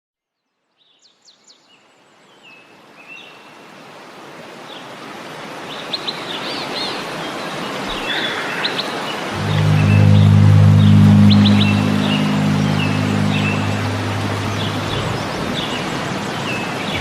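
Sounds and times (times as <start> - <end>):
rushing water: 2.7 - 17.0.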